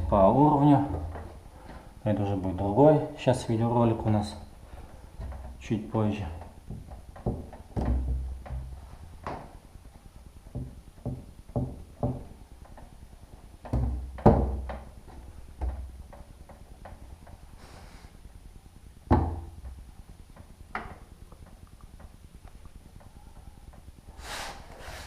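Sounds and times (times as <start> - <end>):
wooden door knocking and thudding: 6.6 - 9.5, 10.5 - 12.4, 13.6 - 15.0, 19.1 - 19.8.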